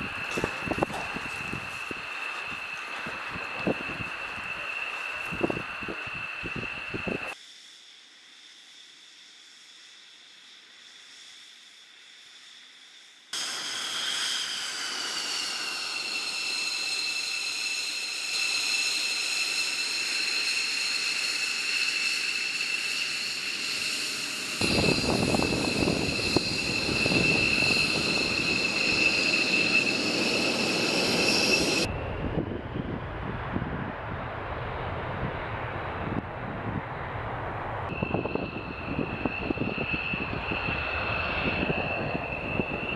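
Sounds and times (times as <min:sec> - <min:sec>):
jet turbine whine: 0:00.0 - 0:07.4, 0:13.4 - 0:42.9
deep jet engine rumble: 0:23.3 - 0:42.9.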